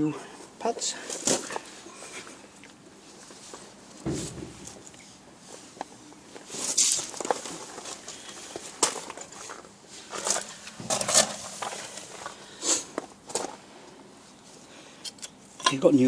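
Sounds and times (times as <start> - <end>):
rustling scrapes: 6.4 - 13.6.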